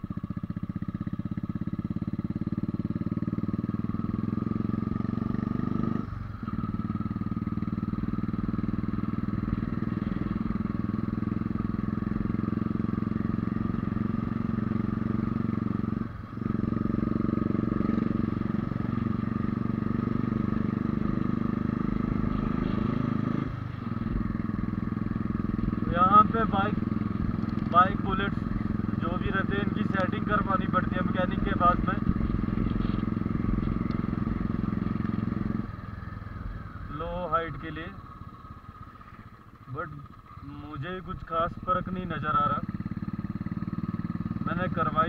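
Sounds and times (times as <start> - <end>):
motorcycle engine under load: 0.0 - 45.0.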